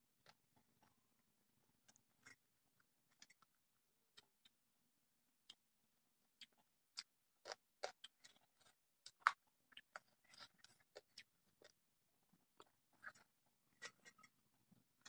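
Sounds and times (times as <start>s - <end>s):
person chewing crunchy food: 6.4s - 11.8s, 12.4s - 15.0s.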